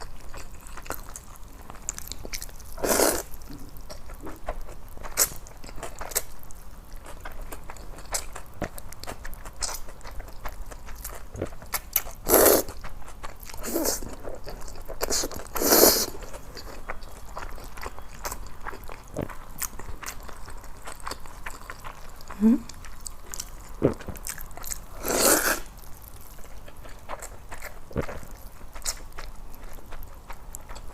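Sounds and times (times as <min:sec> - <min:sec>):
wet chewing: 0:00.0 - 0:30.9
slurping noodles: 0:02.8 - 0:03.3, 0:25.0 - 0:25.7.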